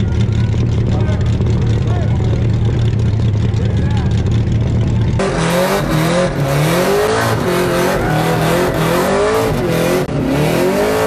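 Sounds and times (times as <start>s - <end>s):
engine revving high: 5.2s - 11.0s.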